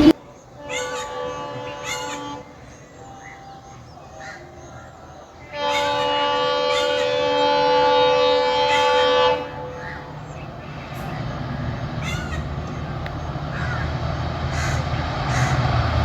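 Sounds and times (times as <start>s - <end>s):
train horn blast: 0.0s - 3.6s, 5.4s - 10.2s
train rumble: 0.0s - 16.0s.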